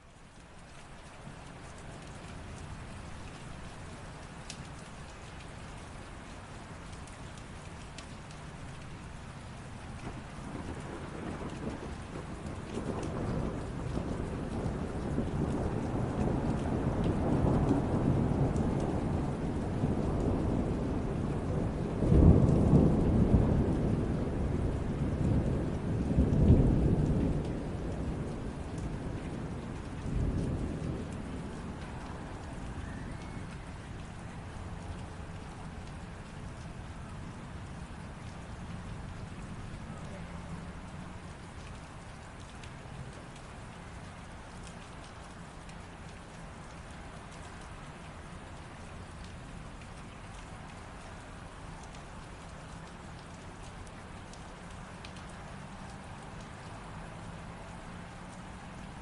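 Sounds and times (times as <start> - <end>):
steady rain: 0.0 - 59.0
rolling thunder: 9.9 - 41.6.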